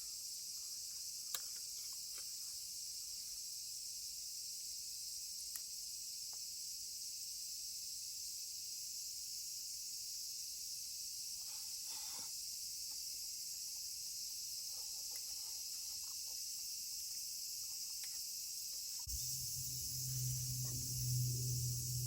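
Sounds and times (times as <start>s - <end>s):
insects chorus: 0.0s - 22.0s
low steady hum: 19.1s - 22.0s
music with low sustained notes: 19.1s - 22.0s.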